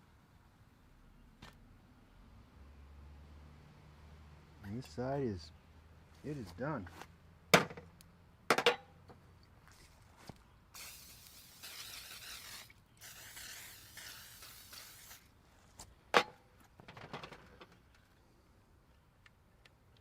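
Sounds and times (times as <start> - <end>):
aerosol cooking spray hissing: 10.8 - 15.2.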